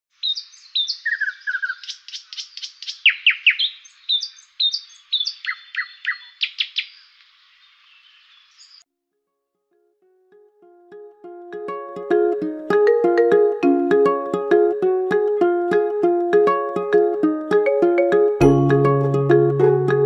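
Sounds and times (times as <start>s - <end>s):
songbirds chirping: 0.1s - 8.8s.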